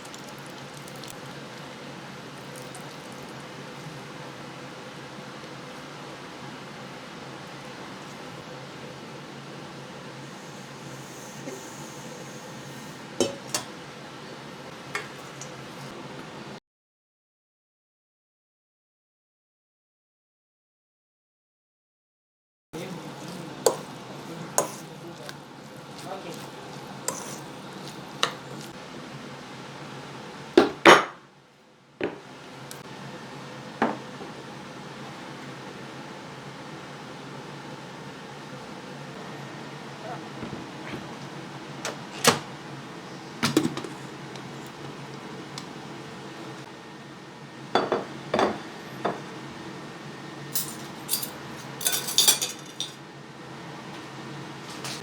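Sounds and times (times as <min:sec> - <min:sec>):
dishes and cutlery clinking: 0:13.2 - 0:13.8, 0:23.2 - 0:24.9, 0:27.1 - 0:27.5, 0:50.6 - 0:53.0.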